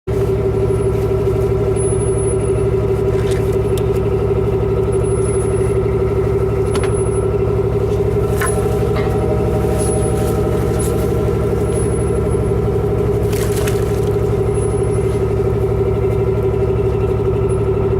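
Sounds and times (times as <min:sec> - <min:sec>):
vehicle engine droning: 0:00.0 - 0:17.9
faint clicks and squeaks: 0:06.6 - 0:17.7.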